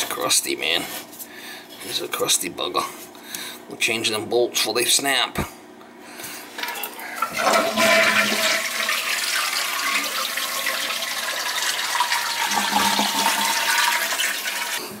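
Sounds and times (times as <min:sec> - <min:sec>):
toilet flushing: 0:06.6 - 0:15.0.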